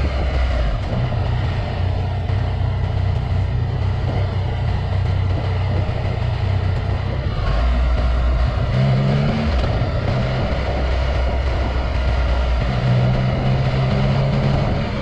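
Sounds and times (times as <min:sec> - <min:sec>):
motorcycle engine running: 0:00.0 - 0:15.0
wind and road noise: 0:00.0 - 0:15.0.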